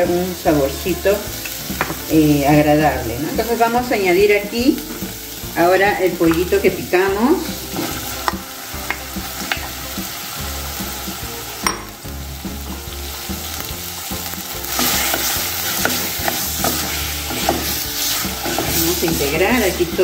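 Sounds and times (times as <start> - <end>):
chicken sizzling in hot oil: 0.0 - 20.0
wooden spoon scraping a pot: 7.4 - 9.7, 14.0 - 20.0.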